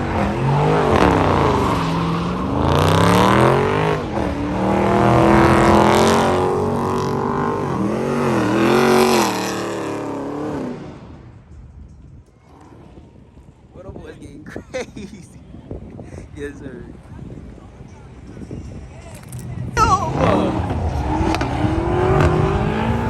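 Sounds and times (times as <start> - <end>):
car engine revving hard: 0.0 - 10.9, 20.1 - 23.0.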